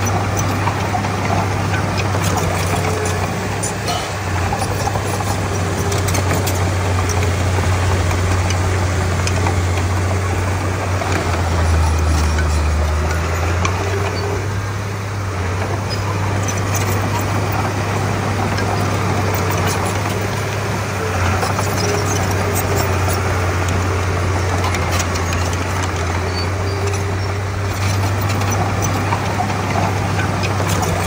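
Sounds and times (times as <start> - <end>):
bulldozer diesel engine drone: 0.0 - 31.0.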